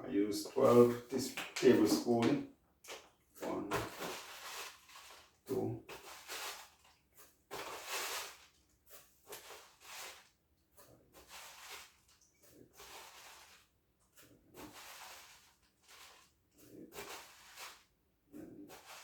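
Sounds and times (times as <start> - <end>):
seeds rustling into container: 3.4 - 10.4, 11.2 - 18.0, 18.7 - 19.0.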